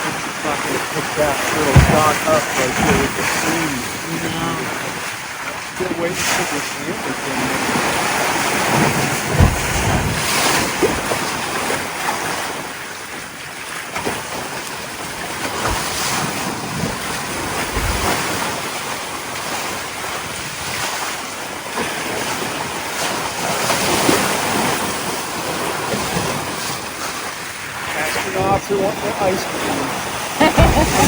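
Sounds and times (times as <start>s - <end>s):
waves washing around a boat: 0.0s - 31.0s
wind rushing over microphone: 7.3s - 11.8s, 15.2s - 21.0s.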